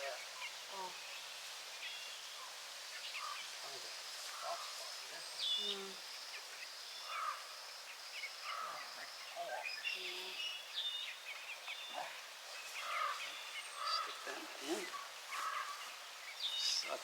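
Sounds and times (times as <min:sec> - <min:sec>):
songbirds chirping and trilling: 0:00.0 - 0:17.0
steady outdoor hiss: 0:00.0 - 0:17.0.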